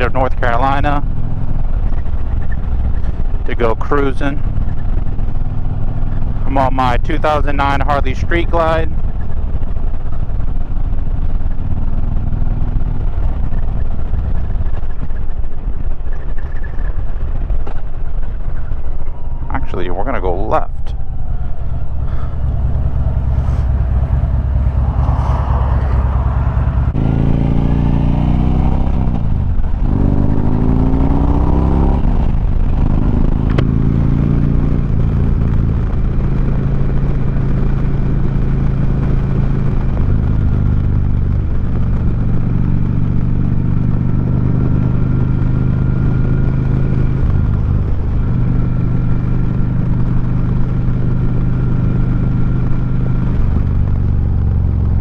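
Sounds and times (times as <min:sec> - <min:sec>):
wind noise: 0:08.9 - 0:48.9
motorcycle engine revving: 0:17.3 - 0:55.0.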